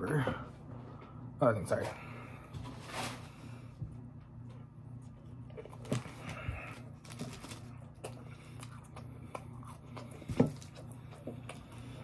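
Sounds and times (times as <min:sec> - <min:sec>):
steady low hum: 0:00.0 - 0:12.0
person biting and chewing: 0:05.5 - 0:12.0.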